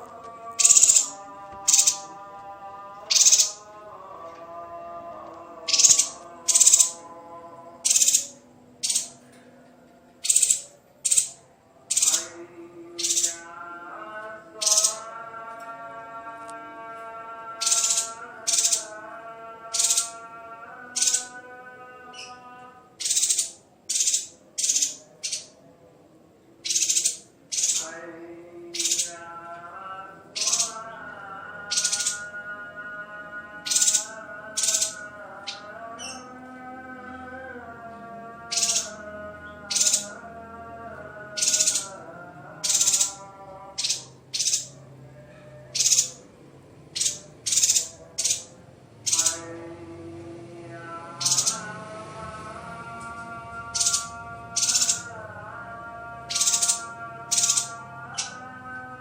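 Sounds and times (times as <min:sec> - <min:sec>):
quiet background music: 0:00.0 - 0:59.0
songbird rasping calls: 0:00.6 - 0:02.1, 0:03.1 - 0:03.7, 0:05.6 - 0:07.0, 0:07.8 - 0:09.2, 0:10.2 - 0:12.3, 0:13.0 - 0:13.4, 0:17.6 - 0:19.0, 0:23.0 - 0:25.6, 0:26.6 - 0:27.9, 0:28.7 - 0:29.1, 0:30.3 - 0:30.9, 0:31.7 - 0:32.3, 0:33.6 - 0:36.3, 0:38.5 - 0:40.2, 0:41.3 - 0:42.0, 0:42.6 - 0:44.8, 0:45.7 - 0:46.2, 0:46.9 - 0:49.5, 0:51.2 - 0:51.7, 0:53.7 - 0:55.1, 0:56.3 - 0:58.5.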